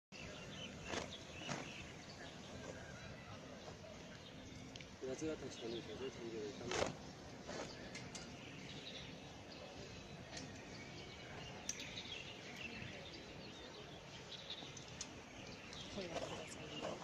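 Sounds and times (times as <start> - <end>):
faint outdoor background noise: 0.1 - 17.0
bird chirps: 0.2 - 17.0.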